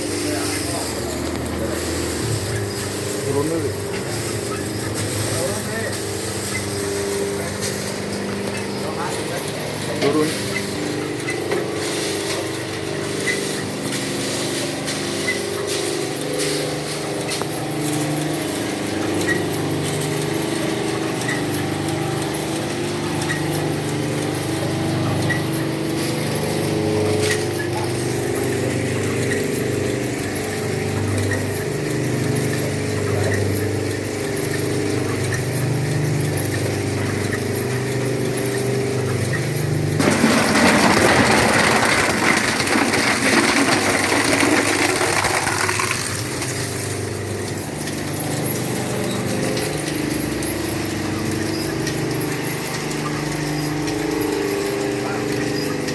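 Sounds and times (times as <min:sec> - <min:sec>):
motor and gearbox hum: 0:00.0 - 0:55.9
loud harsh shredding noise: 0:39.8 - 0:47.1.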